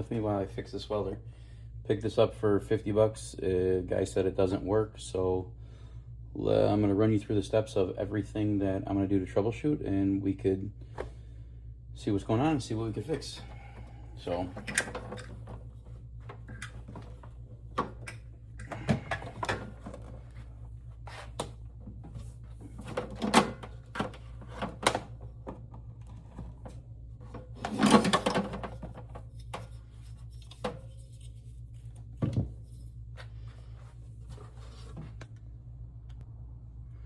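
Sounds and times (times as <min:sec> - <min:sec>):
steady low hum: 0:00.0 - 0:37.0
objects knocking and clunking: 0:13.4 - 0:20.6, 0:21.3 - 0:31.4, 0:32.1 - 0:32.7.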